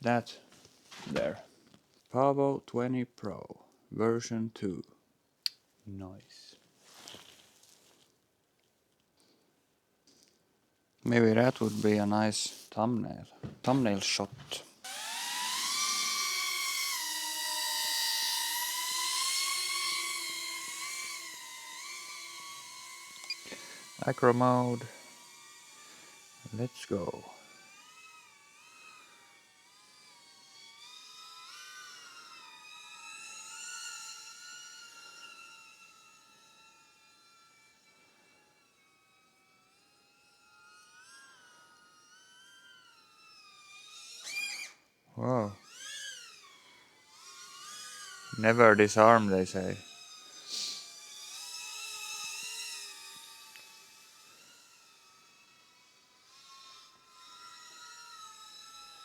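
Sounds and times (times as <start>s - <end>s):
drone propellers whining: 14.8s - 36.8s, 45.6s - 59.0s.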